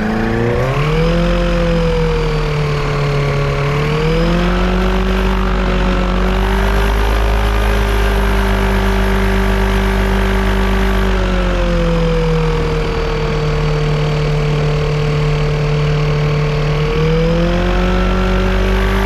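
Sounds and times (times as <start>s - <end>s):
aircraft engine running: 0.0s - 19.0s.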